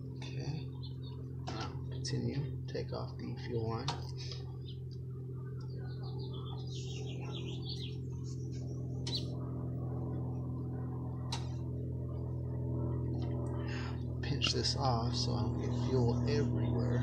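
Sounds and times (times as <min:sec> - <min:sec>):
steady low drone: 0:00.0 - 0:17.0
bird chirping and warbling: 0:00.6 - 0:01.4, 0:04.2 - 0:09.6
sharp clicks of fuel line: 0:11.2 - 0:11.6.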